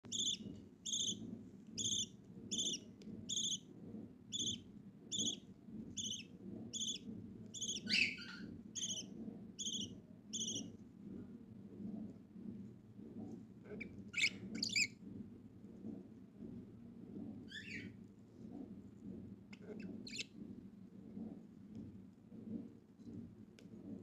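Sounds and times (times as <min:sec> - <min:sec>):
budgerigar chick peeping: 0:00.1 - 0:01.2, 0:01.8 - 0:03.6, 0:04.3 - 0:05.4, 0:06.0 - 0:07.0, 0:07.6 - 0:10.6.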